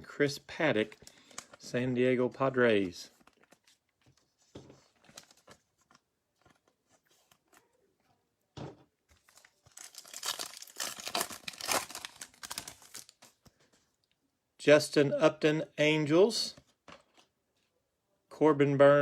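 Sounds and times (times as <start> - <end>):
wrapper tearing and crinkling: 9.3 - 13.4.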